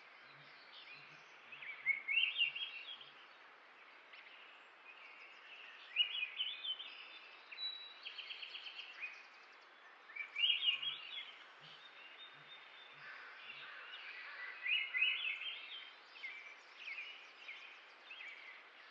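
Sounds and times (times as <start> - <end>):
small birds chirping: 0.0 - 18.9.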